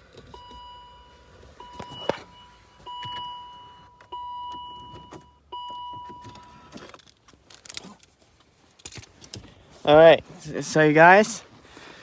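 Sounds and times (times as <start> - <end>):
car warning chime: 0.3 - 6.8.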